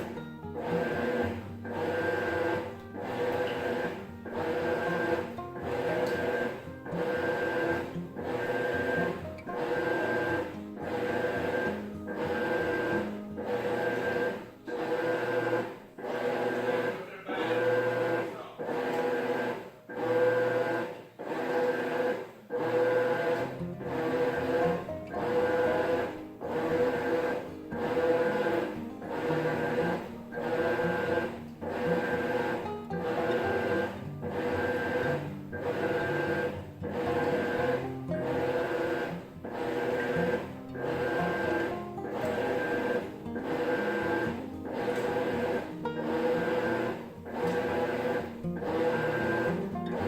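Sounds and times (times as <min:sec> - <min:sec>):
washing machine agitating: 0:00.0 - 0:50.0.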